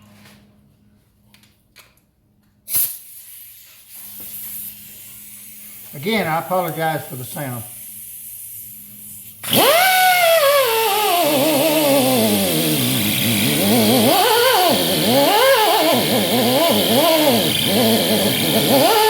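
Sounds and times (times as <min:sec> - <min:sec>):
angle grinder whining on metal: 0:09.5 - 0:19.0.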